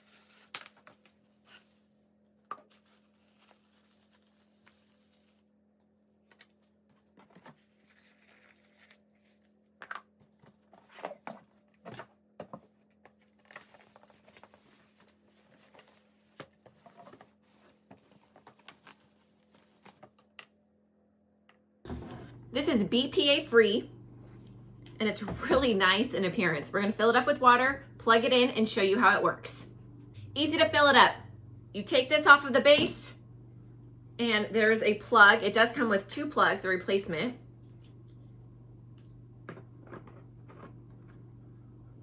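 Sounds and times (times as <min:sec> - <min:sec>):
packaging rustling and tearing: 0:00.0 - 0:01.8, 0:02.7 - 0:05.5, 0:06.4 - 0:09.8, 0:12.8 - 0:20.2.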